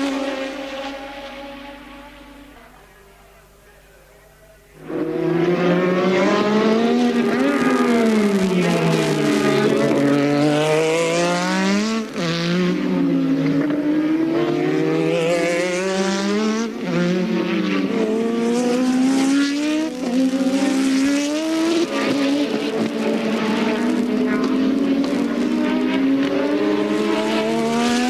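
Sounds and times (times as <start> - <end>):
race car engine at high revs: 0.0 - 3.2, 4.8 - 28.0
second race car engine: 0.0 - 28.0.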